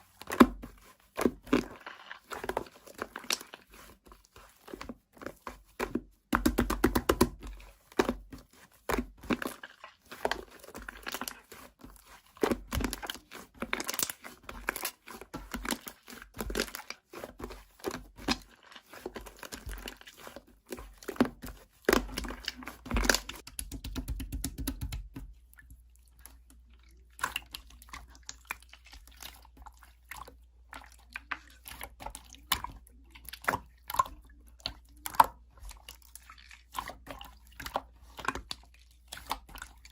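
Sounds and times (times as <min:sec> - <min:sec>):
slime popping and crackling: 0:12.4 - 0:17.0, 0:21.9 - 0:25.2.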